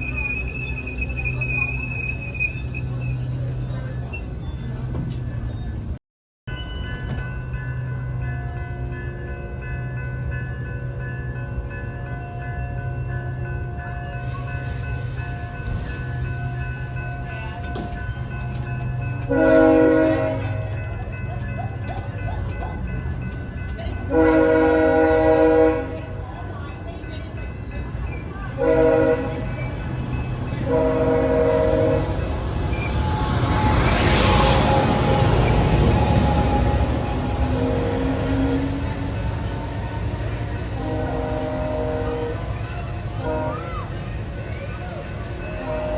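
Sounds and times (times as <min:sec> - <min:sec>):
train passing on rails: 0:00.0 - 0:45.9
diesel locomotive engine running: 0:14.3 - 0:45.9
train horn blasts: 0:19.3 - 0:20.6, 0:24.1 - 0:26.2, 0:28.6 - 0:29.6, 0:30.6 - 0:32.4, 0:33.0 - 0:39.2, 0:40.6 - 0:42.6, 0:43.2 - 0:43.8, 0:45.6 - 0:45.9.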